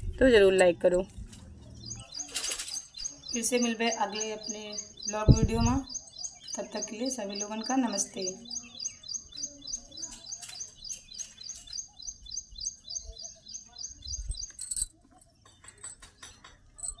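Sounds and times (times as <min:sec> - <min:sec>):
small bird chirping rapidly: 0:01.8 - 0:14.8.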